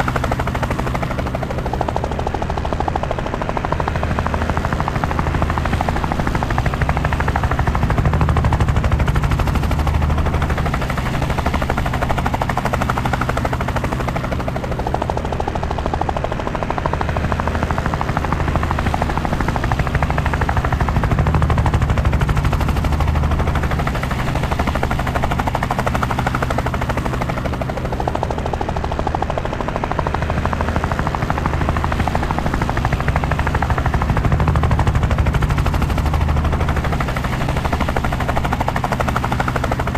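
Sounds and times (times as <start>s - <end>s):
helicopter rotor blades thudding: 0.0s - 39.9s
deep engine throb: 17.3s - 39.9s.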